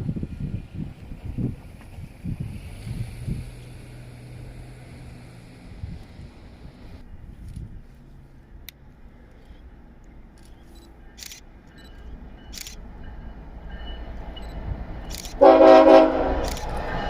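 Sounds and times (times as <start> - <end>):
low rumble of train: 0.0 - 17.0
camera shutter clicks: 10.4 - 11.4, 12.6 - 12.8, 15.1 - 15.4, 16.4 - 16.8
locomotive horn blast: 15.4 - 16.6.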